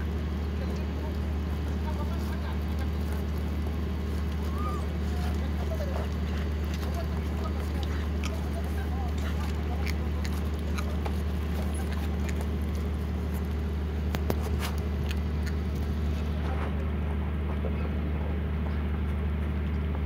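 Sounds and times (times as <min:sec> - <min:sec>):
puppies chewing and crunching: 0:00.0 - 0:20.0
steady low hum: 0:00.0 - 0:20.0.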